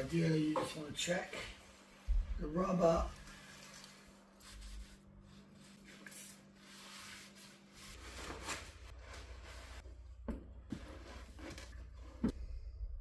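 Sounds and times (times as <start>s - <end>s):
hand rubbing and wiping: 0.2s - 9.8s.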